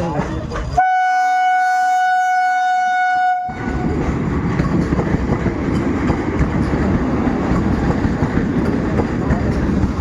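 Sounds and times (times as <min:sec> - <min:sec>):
train running on rails: 0:00.0 - 0:10.0
train horn: 0:00.8 - 0:03.8.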